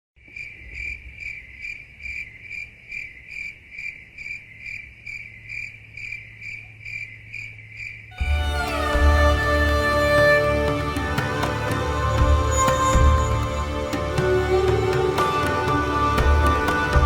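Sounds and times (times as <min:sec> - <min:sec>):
insect chirping: 0:00.2 - 0:08.2
music: 0:08.2 - 0:17.0.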